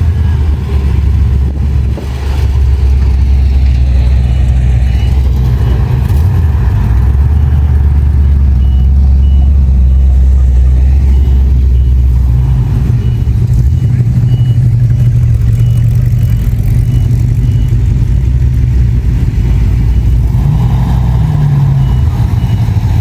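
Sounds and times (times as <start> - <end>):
car engine deep rumble: 0.0 - 23.0.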